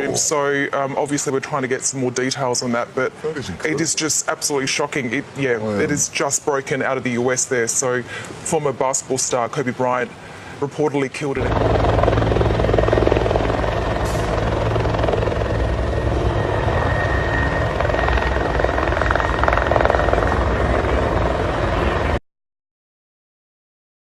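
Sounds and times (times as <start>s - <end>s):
helicopter rotor and engine: 11.4s - 22.2s.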